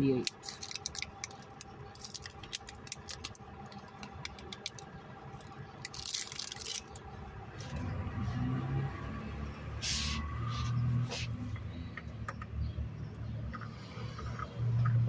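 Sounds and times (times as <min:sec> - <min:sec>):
parts clicking and rattling: 0:00.2 - 0:07.0.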